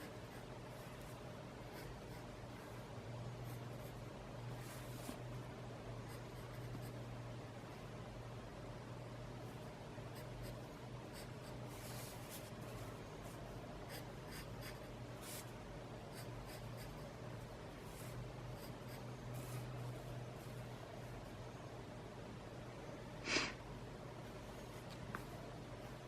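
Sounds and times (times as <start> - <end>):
faint hum: 0.0 - 26.0
pen scratching on paper: 1.6 - 2.8, 6.1 - 7.0, 10.1 - 12.5, 13.8 - 15.5, 16.1 - 17.0, 17.9 - 20.6.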